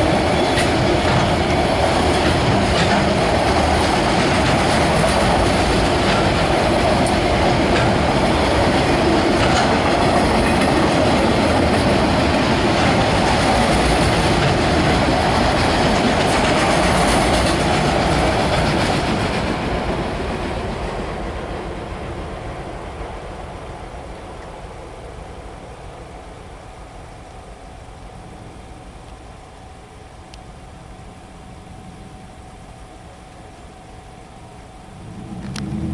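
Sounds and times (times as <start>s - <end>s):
freight train rail noise: 0.0s - 35.9s.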